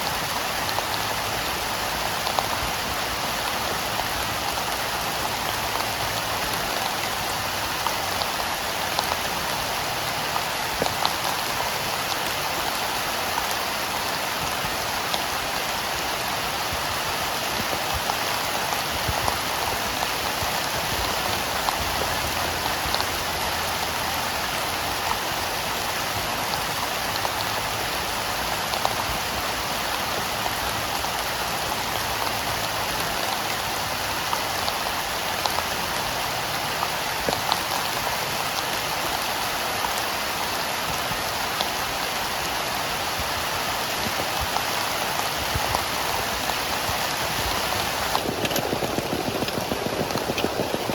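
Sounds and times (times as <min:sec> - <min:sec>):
heavy rain falling: 0:00.0 - 0:50.9
sharp raindrop hits: 0:44.0 - 0:50.9.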